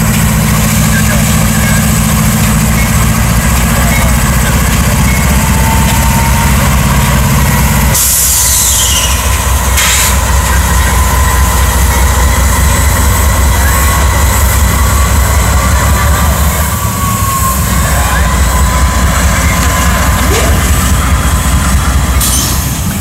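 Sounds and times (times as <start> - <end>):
freight train rumbling past: 0.0 - 23.0
wheels squealing on rails: 0.0 - 23.0
brief hiss: 9.8 - 10.2.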